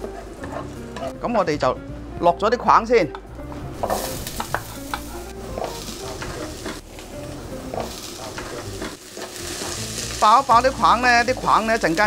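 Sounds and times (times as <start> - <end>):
vegetables sizzling in hot oil: 3.7 - 12.0.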